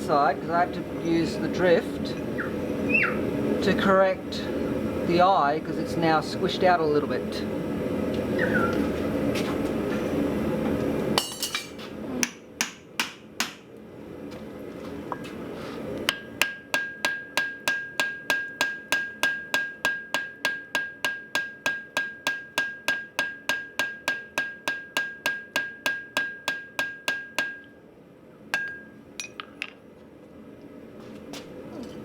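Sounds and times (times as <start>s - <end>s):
hammer striking steel on anvil: 11.2s - 13.6s, 16.1s - 27.8s, 28.5s - 29.7s.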